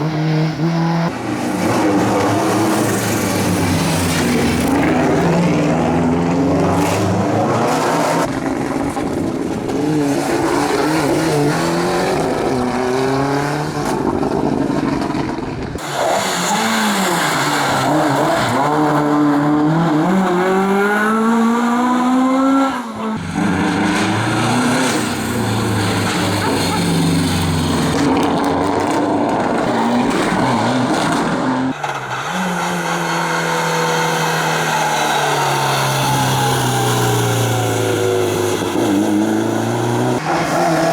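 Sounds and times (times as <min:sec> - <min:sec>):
rally car engines revving: 0:00.0 - 0:40.9
tyre squeal: 0:31.7 - 0:38.3.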